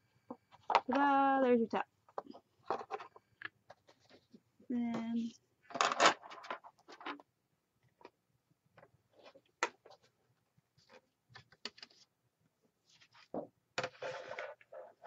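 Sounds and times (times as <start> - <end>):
paper rustling: 10.8 - 12.1, 12.8 - 15.0.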